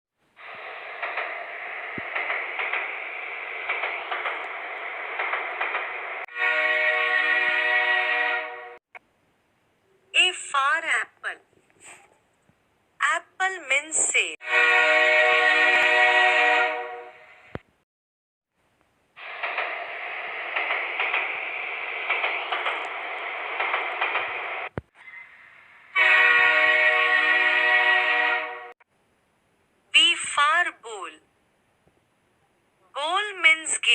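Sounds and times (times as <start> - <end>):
cartoon train horn blast: 6.3 - 8.8, 14.4 - 17.4, 25.9 - 28.7.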